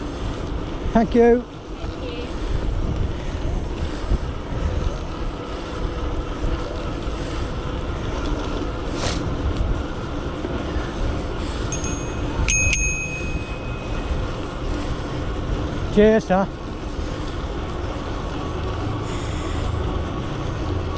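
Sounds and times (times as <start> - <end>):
wind buffeting microphone: 0.0 - 15.9
bicycle tyre noise: 0.0 - 20.9
bicycle bell ringing: 11.6 - 14.6.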